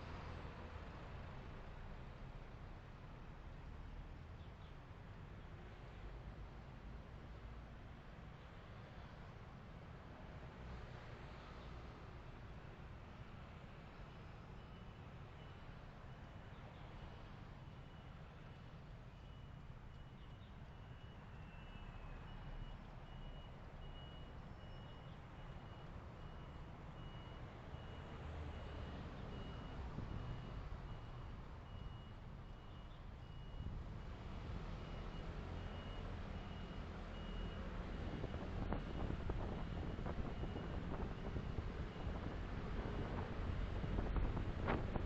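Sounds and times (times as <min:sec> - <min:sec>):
engine and road rumble: 0:00.0 - 0:45.0
vehicle warning beeper: 0:19.1 - 0:33.8, 0:34.8 - 0:39.2.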